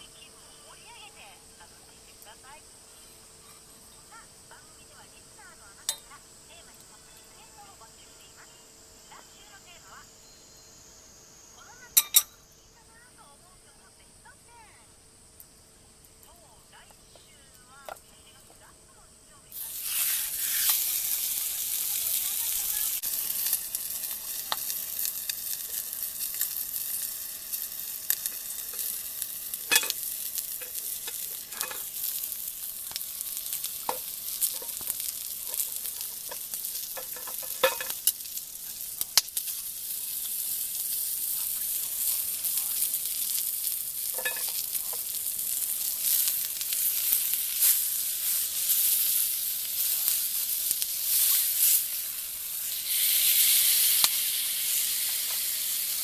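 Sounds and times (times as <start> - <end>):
food sizzling in a frying pan: 0.0 - 56.0
sharp pops and crackles: 19.7 - 56.0.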